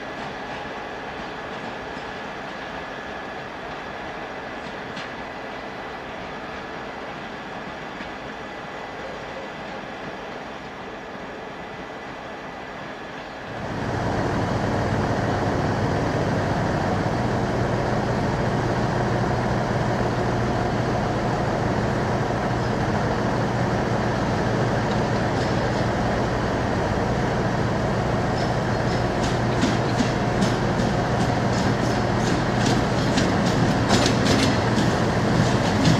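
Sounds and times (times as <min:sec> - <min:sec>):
locomotive humming: 0:00.0 - 0:35.9
rail ambience: 0:00.0 - 0:35.9
wheel clicks over rail joints: 0:28.4 - 0:35.9.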